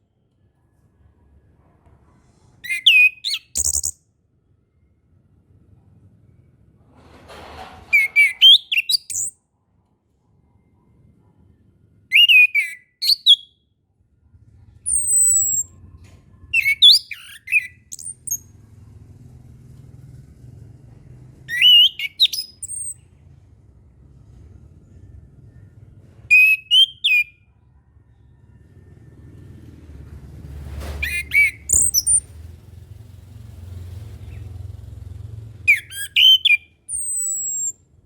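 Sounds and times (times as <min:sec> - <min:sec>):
thrush singing whistles: 0:02.6 - 0:04.0, 0:07.9 - 0:09.3, 0:12.1 - 0:13.6, 0:14.8 - 0:15.8, 0:16.5 - 0:18.4, 0:21.5 - 0:23.0, 0:26.3 - 0:27.4, 0:31.0 - 0:32.2, 0:35.7 - 0:37.8
high falling whistle: 0:31.0 - 0:32.2.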